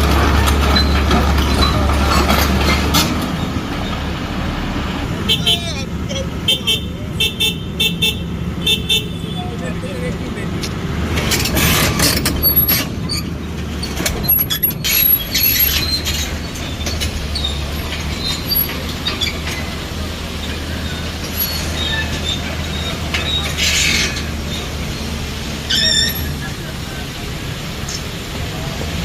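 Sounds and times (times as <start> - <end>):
heavy machine engine drone: 0.0 - 29.0
metallic squeals and clanks: 0.1 - 4.2, 10.6 - 26.7.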